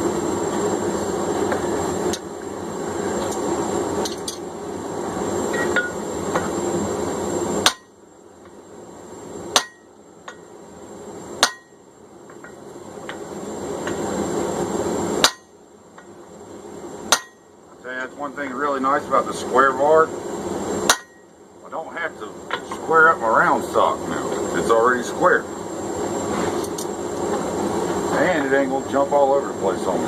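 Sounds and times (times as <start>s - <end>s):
hammer blows on hot steel: 7.6s - 8.0s, 9.5s - 10.5s, 11.4s - 11.8s, 15.2s - 16.1s, 17.1s - 17.5s, 20.8s - 21.3s.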